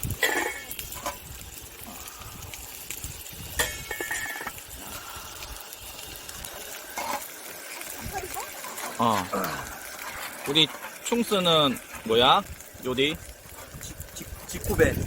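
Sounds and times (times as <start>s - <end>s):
metal cookware clinking: 0.1s - 1.2s, 3.6s - 4.6s.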